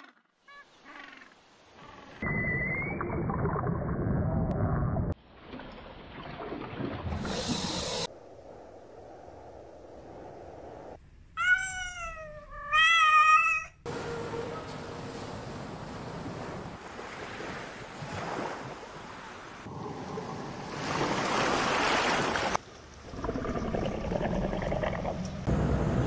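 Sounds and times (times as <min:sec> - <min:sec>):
cat meowing: 0:11.4 - 0:13.8
surf rushing: 0:13.9 - 0:22.6.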